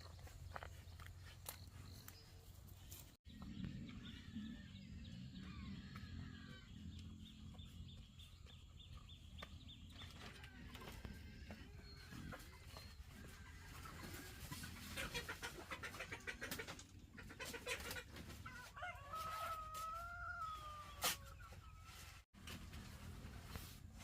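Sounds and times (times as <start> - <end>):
chickens clucking: 5.2 - 22.1
rooster crowing: 18.7 - 21.1.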